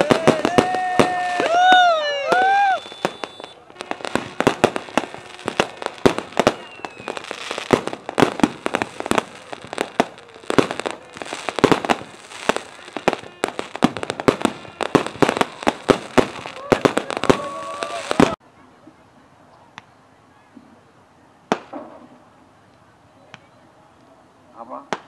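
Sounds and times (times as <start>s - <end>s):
fireworks bursting and crackling: 0.0s - 18.4s, 21.5s - 23.5s, 24.6s - 25.0s.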